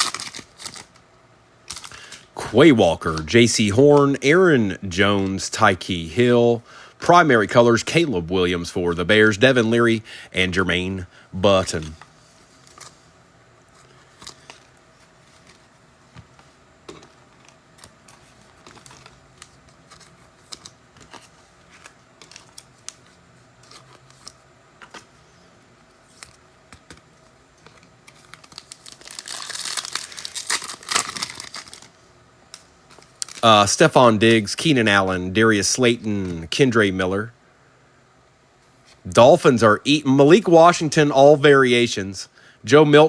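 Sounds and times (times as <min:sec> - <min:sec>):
foil wrapper crinkling: 0:00.0 - 0:01.0, 0:27.7 - 0:32.0, 0:32.9 - 0:33.8.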